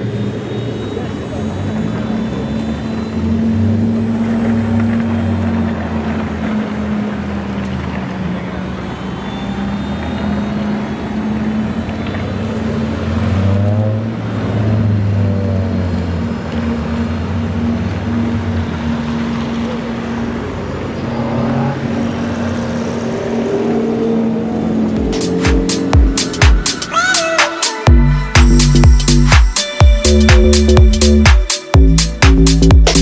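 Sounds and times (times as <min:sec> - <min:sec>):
car engine running: 0:14.1 - 0:27.0, 0:27.9 - 0:33.0.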